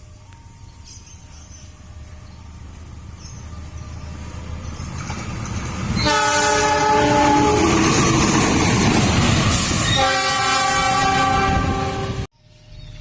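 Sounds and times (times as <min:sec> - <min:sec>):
train rumbling on rails: 0:00.0 - 0:13.0
train horn blasts: 0:06.0 - 0:08.0, 0:09.8 - 0:12.3.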